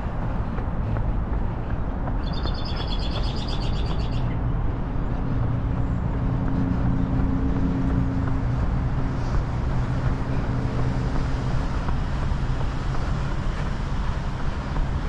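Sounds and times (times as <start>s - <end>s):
low rumble of traffic: 0.0s - 15.0s
small bird trilling: 2.2s - 4.2s.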